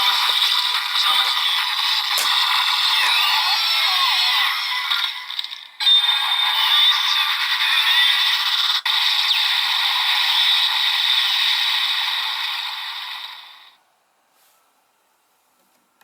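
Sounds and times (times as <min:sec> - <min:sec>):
toy speaker sound effects: 0:00.0 - 0:08.6.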